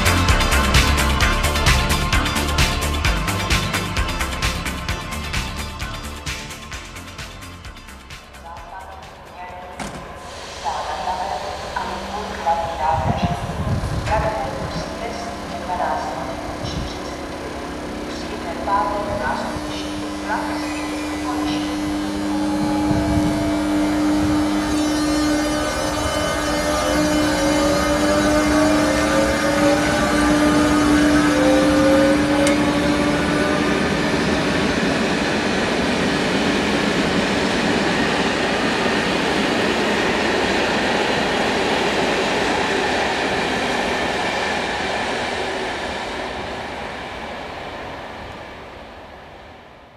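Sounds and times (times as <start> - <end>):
train rolling noise: 0.0 - 49.9
train motor whine: 9.5 - 47.6.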